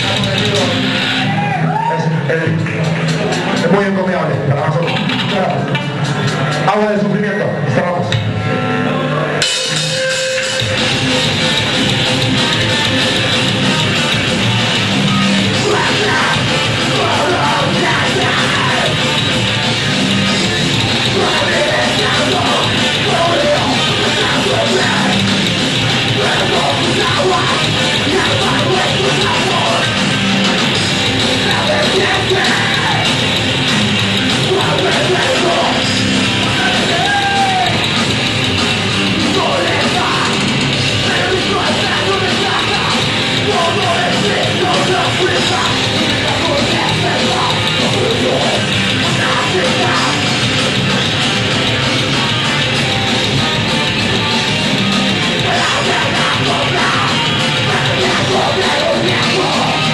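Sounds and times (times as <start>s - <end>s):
live heavy rock band: 0.0s - 59.9s
person yelling vocals: 36.6s - 37.8s.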